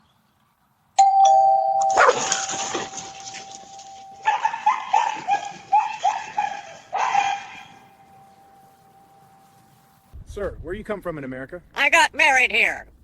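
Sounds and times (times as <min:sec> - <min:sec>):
two-note doorbell chime: 0:01.0 - 0:04.5
dog barking: 0:01.9 - 0:07.9.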